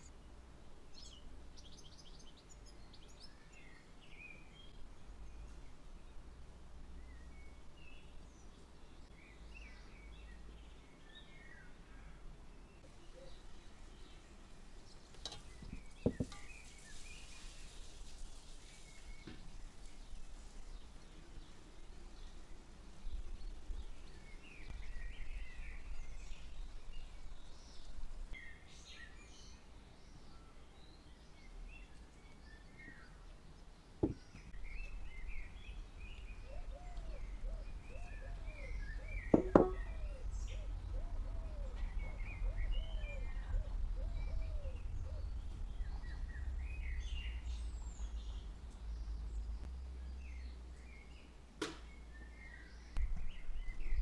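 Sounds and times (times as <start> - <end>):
small birds chirping: 0.0 - 54.0
sharp knock: 34.0 - 34.2, 39.3 - 39.9
bird call rising and falling: 36.1 - 50.4
low rumble: 41.8 - 50.8.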